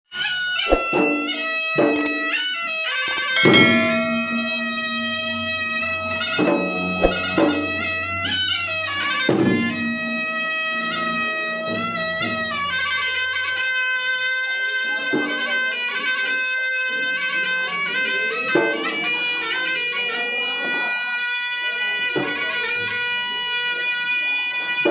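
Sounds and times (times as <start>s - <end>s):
nasal shawm melody: 0.4s - 24.8s
drum strokes: 0.7s - 2.4s, 3.1s - 9.8s.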